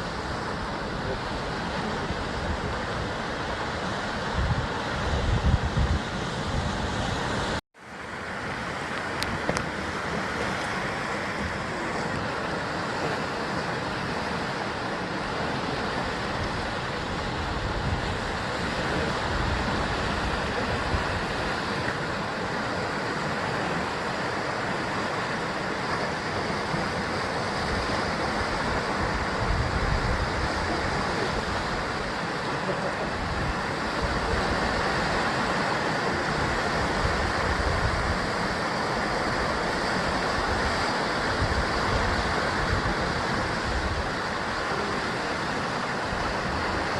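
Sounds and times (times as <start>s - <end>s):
waves breaking on rocky coast: 0.0s - 46.9s.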